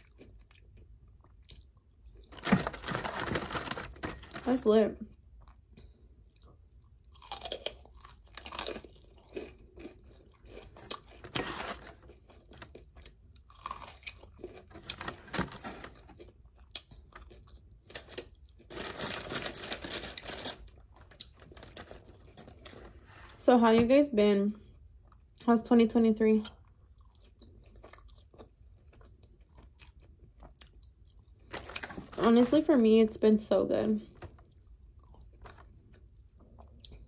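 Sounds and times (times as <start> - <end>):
chewing crispy chicken: 0.0 - 4.0, 5.2 - 11.3, 11.9 - 22.6, 26.4 - 31.8.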